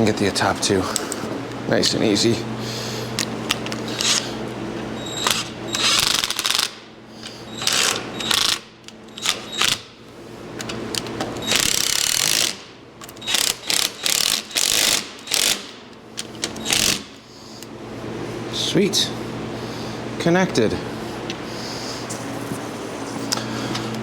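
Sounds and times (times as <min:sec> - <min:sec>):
ratchet wrench clicking: 0:05.2 - 0:06.8, 0:11.4 - 0:12.6, 0:13.2 - 0:15.8.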